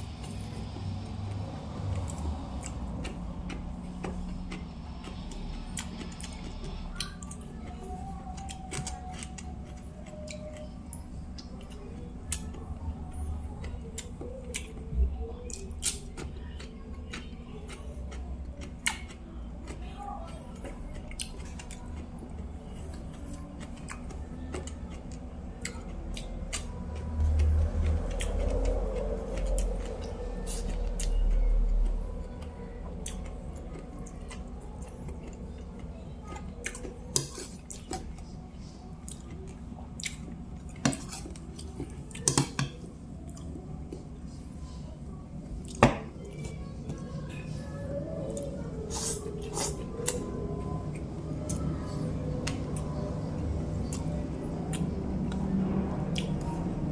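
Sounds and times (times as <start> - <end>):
chewing food: 0.0 - 44.8, 45.4 - 56.9.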